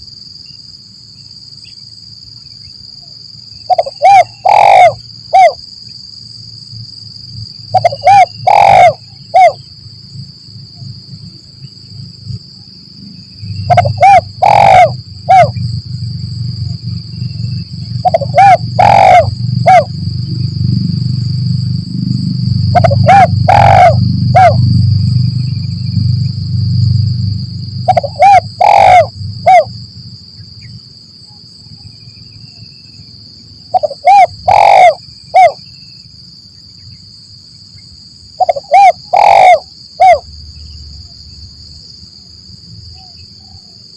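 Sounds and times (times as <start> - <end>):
dove cooing: 3.7 - 5.6, 7.7 - 9.6, 13.7 - 15.6, 18.0 - 19.9, 22.7 - 24.8, 27.8 - 29.7, 33.7 - 35.6, 38.4 - 40.2
high-pitched drone: 7.8 - 9.6, 13.7 - 15.6, 17.9 - 29.7
low rumble: 15.0 - 30.4.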